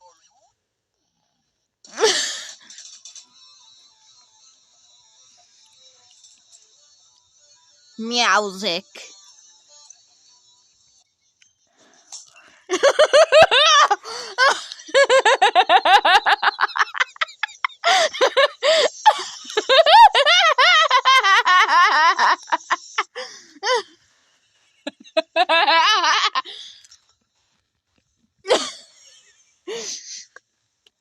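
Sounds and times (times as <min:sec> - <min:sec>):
person laughing hard: 0:02.0 - 0:02.7, 0:12.7 - 0:23.9, 0:24.9 - 0:26.7, 0:28.5 - 0:30.4.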